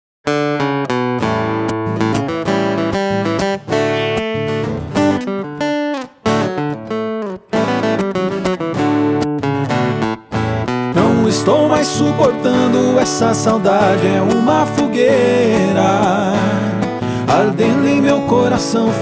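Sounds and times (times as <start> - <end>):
acoustic guitar playing: 0.2 - 19.0.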